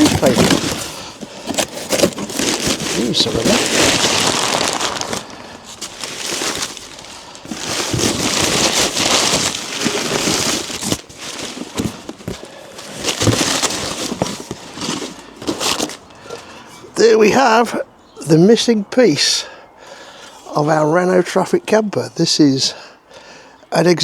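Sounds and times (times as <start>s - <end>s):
newspaper crumpling and rustling: 0.0s - 16.8s.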